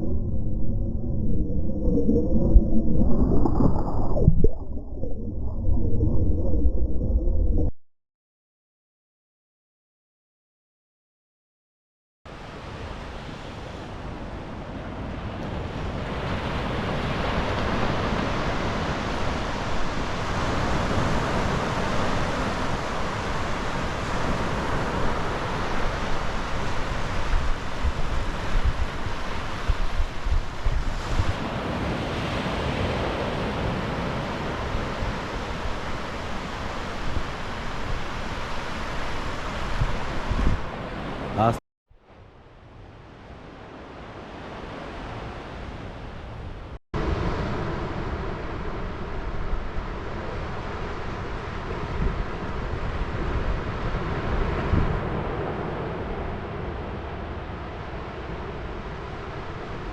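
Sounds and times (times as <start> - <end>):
sea surf washing onto beach: 12.5 - 41.5
wind buffeting microphone: 36.9 - 40.9.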